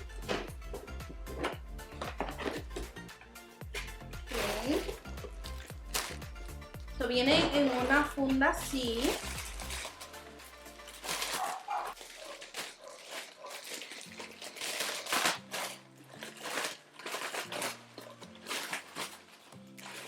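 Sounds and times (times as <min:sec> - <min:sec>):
soft background music: 0:00.0 - 0:20.0
packaging rustling and crinkling: 0:03.8 - 0:06.6, 0:07.2 - 0:20.0.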